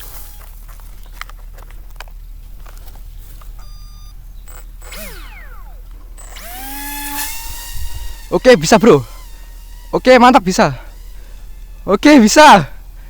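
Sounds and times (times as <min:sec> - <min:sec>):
electric motor whine: 0:00.0 - 0:13.0
short electronic beep: 0:03.6 - 0:04.2
brief falling whine: 0:03.6 - 0:10.2.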